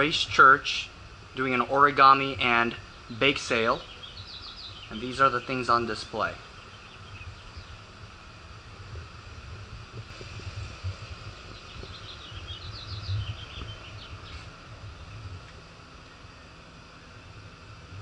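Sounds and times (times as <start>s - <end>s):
steady low rumble: 0.0s - 18.0s
small bird chirping: 2.9s - 7.9s, 11.2s - 15.2s.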